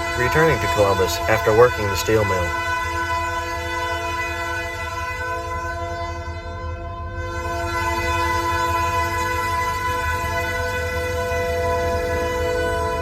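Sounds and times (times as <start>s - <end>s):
locomotive engines rumbling: 0.0s - 2.7s
locomotive horn chord: 0.0s - 13.0s.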